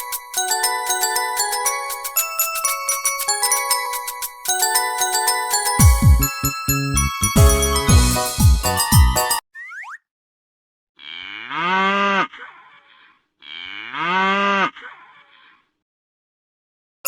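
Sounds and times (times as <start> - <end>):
cattle mooing: 11.0 - 12.4, 13.4 - 14.8.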